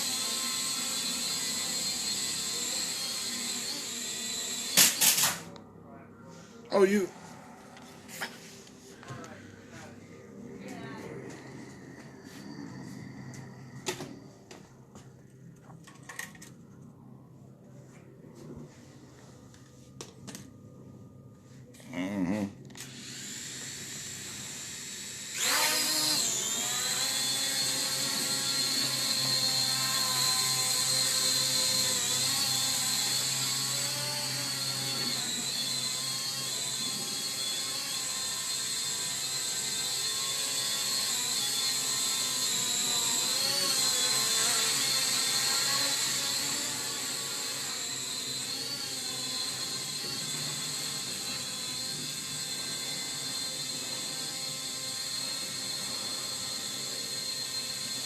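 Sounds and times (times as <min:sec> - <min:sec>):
drone propellers whining: 0:07.1 - 0:14.9, 0:22.8 - 0:58.0.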